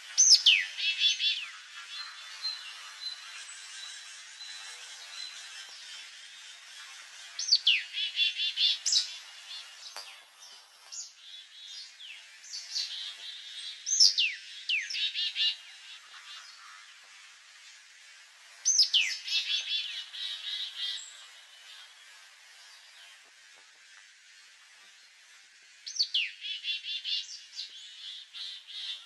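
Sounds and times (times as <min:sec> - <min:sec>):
soft bird chirps: 0:00.0 - 0:17.3, 0:18.6 - 0:29.0
songbird whistling and chirping: 0:00.2 - 0:01.5, 0:07.4 - 0:09.2, 0:13.8 - 0:15.6, 0:18.6 - 0:21.1, 0:25.9 - 0:27.9.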